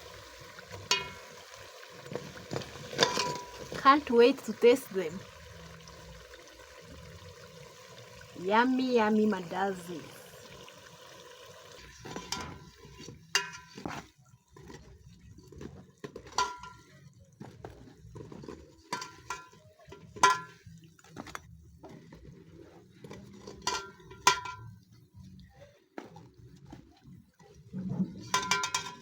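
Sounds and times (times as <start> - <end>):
metal utensil knocking on pot: 0.8 - 1.3, 2.1 - 4.0, 13.4 - 13.9, 16.3 - 16.9, 18.9 - 20.6, 23.6 - 24.6, 28.2 - 29.0.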